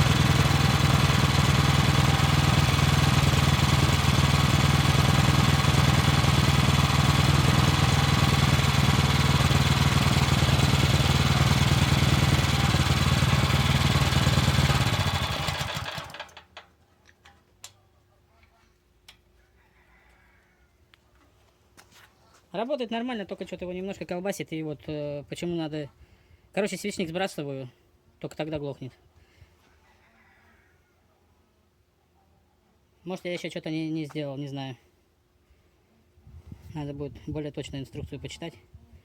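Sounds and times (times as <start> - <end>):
petrol engine running: 0.0 - 16.4.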